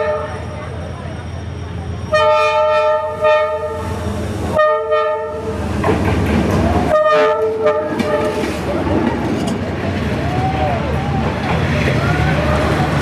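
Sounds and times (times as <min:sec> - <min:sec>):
train horn blasts: 0:00.0 - 0:00.6, 0:02.1 - 0:05.6, 0:06.9 - 0:08.6
low rumble of train: 0:00.0 - 0:13.0.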